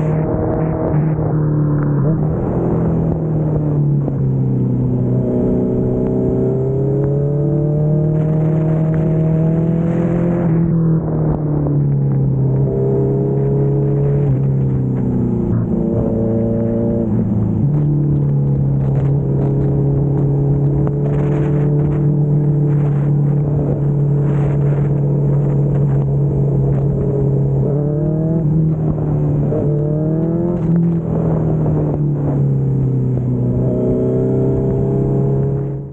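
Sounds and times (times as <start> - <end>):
motorcycle engine cruising: 0.0 - 35.9
road and wind noise: 0.0 - 35.9.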